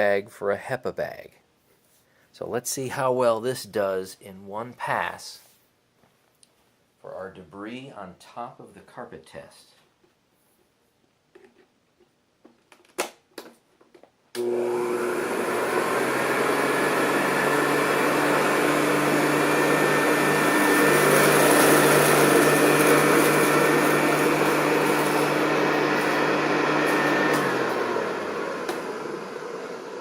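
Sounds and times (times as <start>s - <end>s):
vacuum cleaner motor running: 14.4s - 30.0s.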